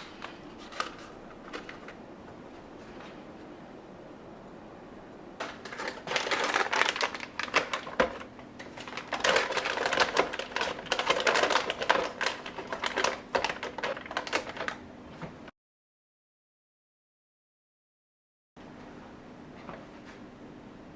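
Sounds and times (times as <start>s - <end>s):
plastic containers clicking and crinkling: 0.0s - 2.0s, 5.4s - 14.8s
faint steady hum: 0.0s - 15.5s.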